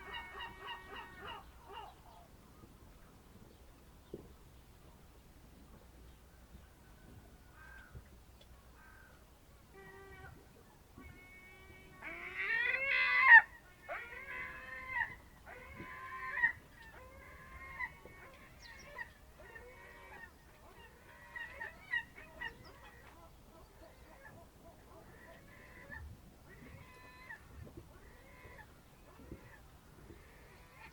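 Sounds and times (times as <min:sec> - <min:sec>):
birds calling: 0:00.0 - 0:04.4, 0:12.0 - 0:30.9.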